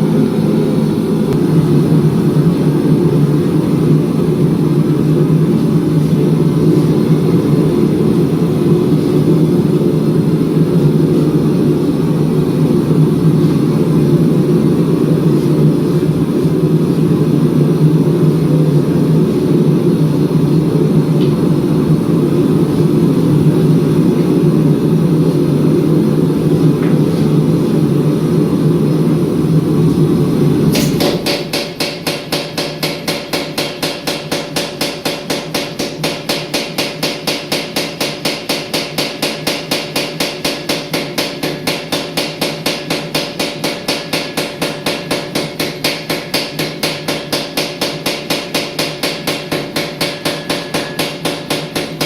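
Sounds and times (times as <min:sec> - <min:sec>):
low machine rumble: 0:00.0 - 0:31.6.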